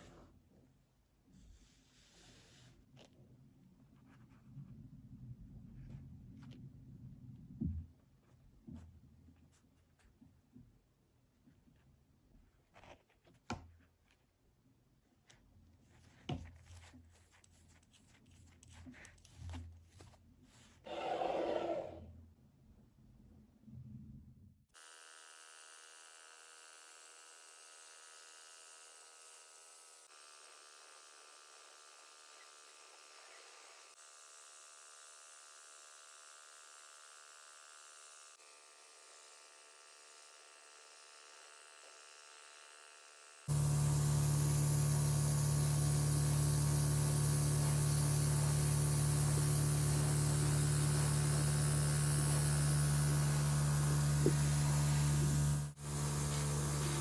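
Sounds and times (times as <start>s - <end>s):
small electric motor running: 24.8s - 57.0s.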